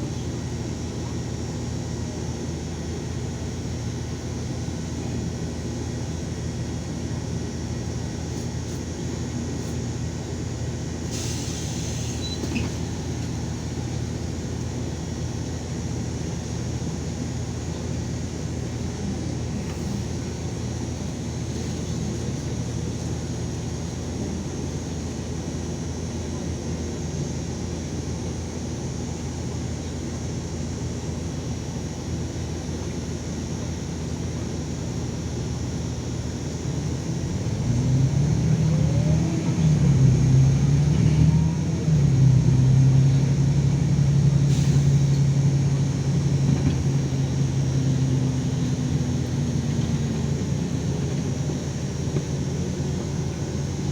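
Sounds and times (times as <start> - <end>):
bus engine and road drone: 0.0 - 53.9
air hiss: 11.1 - 12.8, 44.4 - 45.2.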